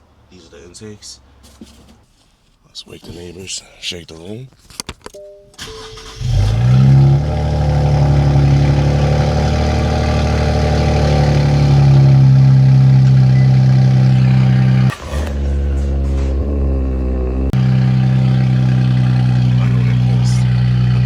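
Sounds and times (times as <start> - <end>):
car engine starting and idling: 4.5 - 21.0.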